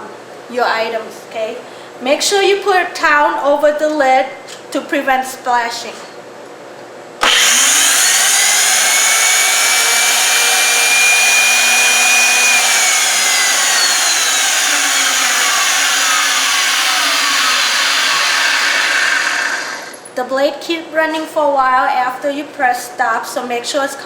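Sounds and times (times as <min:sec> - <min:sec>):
blender motor whining: 0:07.2 - 0:20.1.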